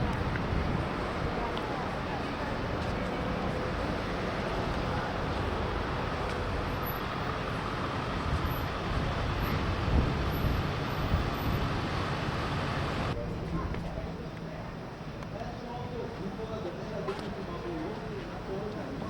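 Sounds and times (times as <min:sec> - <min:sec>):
steady rumbling noise: 0:00.0 - 0:14.9.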